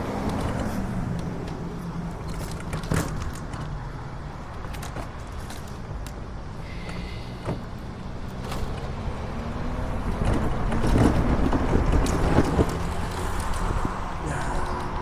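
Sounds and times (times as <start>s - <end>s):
road rumble: 0.0s - 15.0s
wind buffeting microphone: 8.9s - 15.0s.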